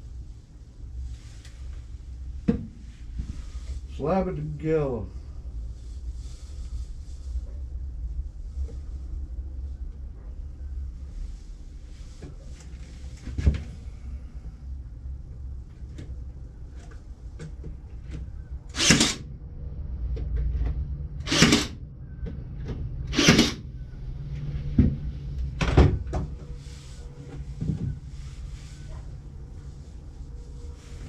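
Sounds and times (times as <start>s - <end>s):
staple gun shots: 18.8s - 19.2s, 21.3s - 21.8s, 23.1s - 23.6s.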